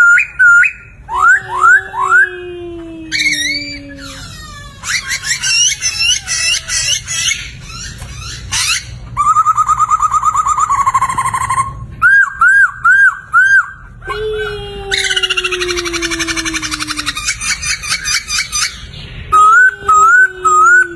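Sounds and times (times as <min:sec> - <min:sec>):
bird singing whistled phrases: 0:00.0 - 0:02.3.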